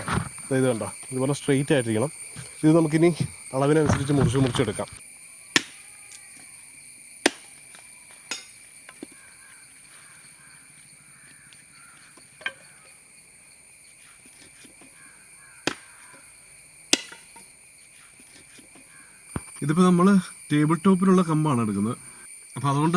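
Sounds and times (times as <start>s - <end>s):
cicadas droning: 0.0s - 22.9s
blade chopping thin sticks: 5.6s - 5.8s, 7.3s - 7.7s, 8.3s - 8.6s, 15.7s - 16.2s, 16.9s - 19.6s.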